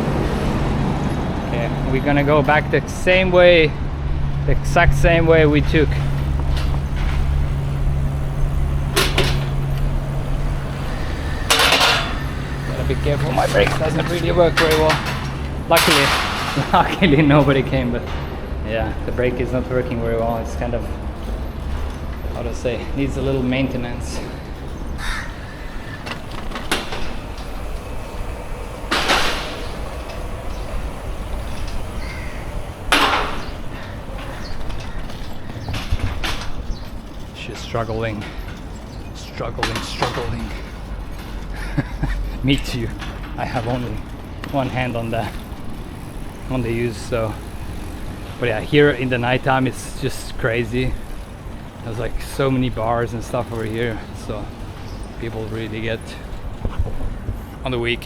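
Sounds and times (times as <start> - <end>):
bicycle ride rumble: 0.0 - 58.0
harsh hiss: 4.4 - 17.8, 24.3 - 35.6
harsh rasping sounds: 24.1 - 41.5.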